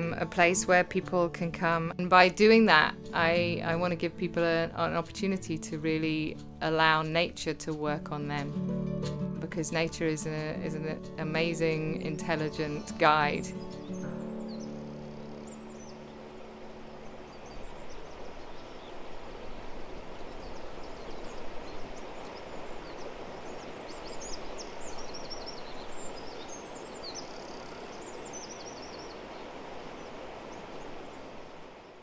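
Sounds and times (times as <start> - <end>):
rushing outdoor background: 1.8 - 32.0
birds chirping and twittering: 10.2 - 32.0.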